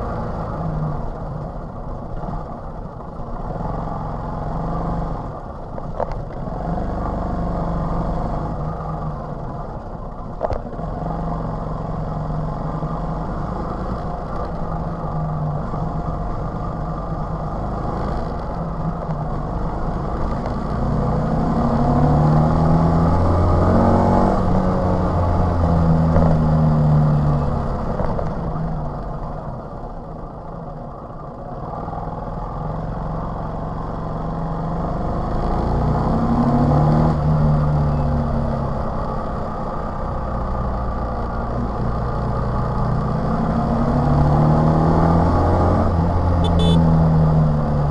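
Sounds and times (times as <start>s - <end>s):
moped engine running: 46.1s - 46.9s.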